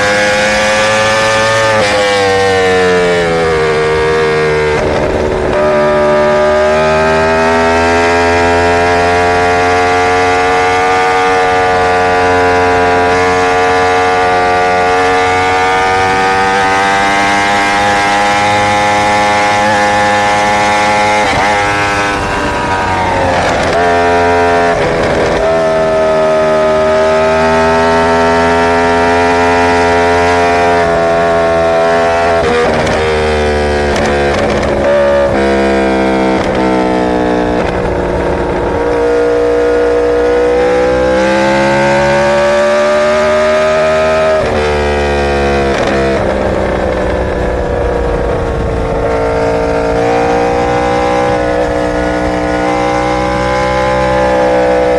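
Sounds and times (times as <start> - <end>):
motorcycle engine at high rpm: 0.0 - 54.9.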